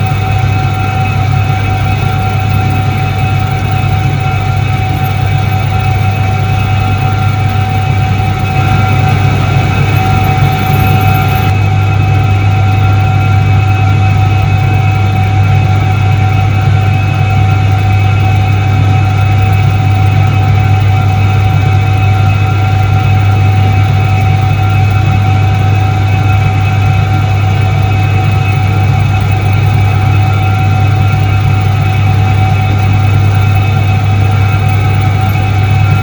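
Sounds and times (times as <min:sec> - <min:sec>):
washing machine motor humming: 0:00.0 - 0:12.0
faint motor whine: 0:00.0 - 0:36.0.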